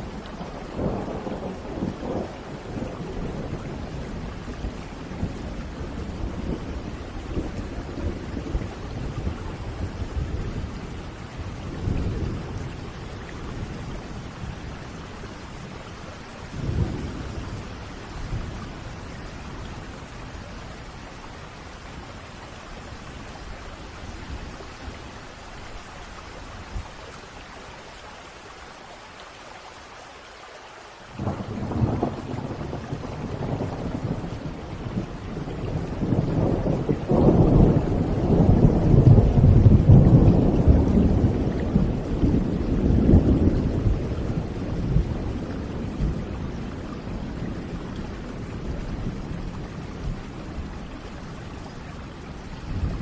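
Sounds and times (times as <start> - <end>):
thunder rumbling: 0.0 - 21.6, 31.2 - 53.0
steady rainfall: 0.0 - 53.0.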